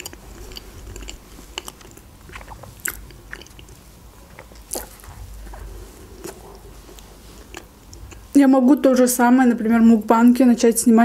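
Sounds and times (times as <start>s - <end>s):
wet mouth clicks: 0.0s - 3.8s
chewing a croissant: 0.0s - 8.4s.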